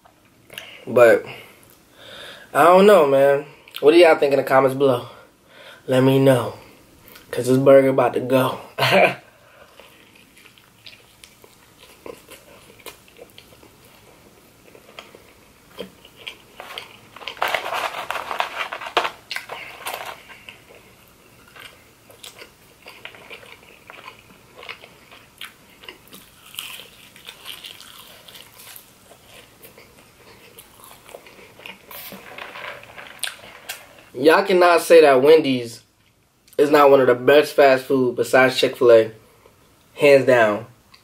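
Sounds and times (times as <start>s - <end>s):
chewing with wet mouth sounds: 9.6s - 17.2s, 20.2s - 31.9s.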